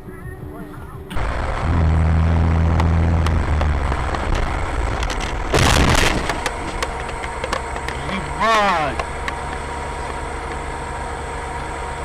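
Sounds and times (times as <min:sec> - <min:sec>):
moving car noise: 0:00.0 - 0:12.0
collision crash: 0:01.2 - 0:07.3.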